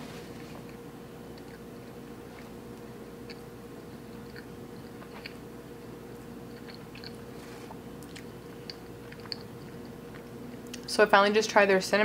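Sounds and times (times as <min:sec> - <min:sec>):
steady low hum: 0:00.0 - 0:12.0
chewing with wet mouth clicks: 0:00.6 - 0:05.5, 0:06.2 - 0:07.4, 0:08.0 - 0:10.9.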